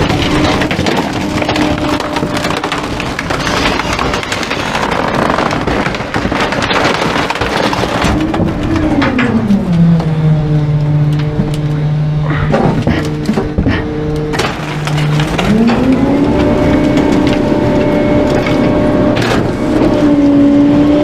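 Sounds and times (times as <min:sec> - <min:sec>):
wood cracking and splintering: 0:00.0 - 0:21.0
hydraulic hum: 0:08.2 - 0:20.8.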